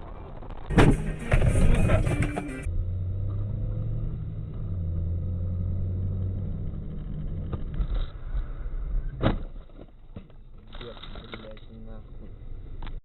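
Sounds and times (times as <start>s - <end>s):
car engine drone: 0.0s - 9.9s
road noise: 0.0s - 13.0s.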